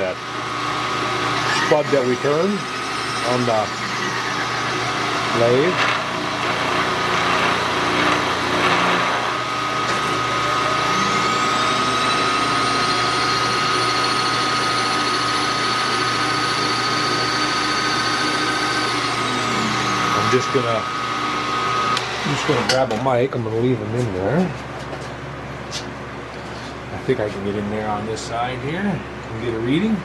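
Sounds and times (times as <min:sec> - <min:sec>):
milling machine cutting: 0:00.0 - 0:23.0.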